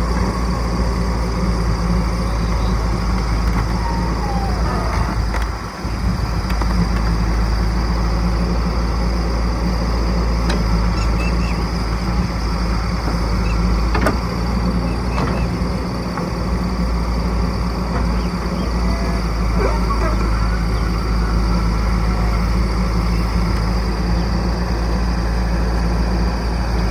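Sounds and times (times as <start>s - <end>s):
diesel engine running under load: 0.0s - 26.9s
knocks and clanks: 12.8s - 16.5s.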